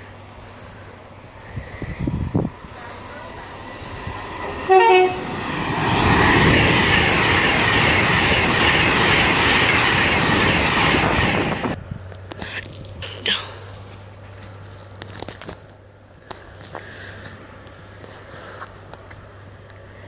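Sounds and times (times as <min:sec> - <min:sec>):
train wheels rushing on rails: 0:00.0 - 0:11.8
train horn blast: 0:04.4 - 0:05.4.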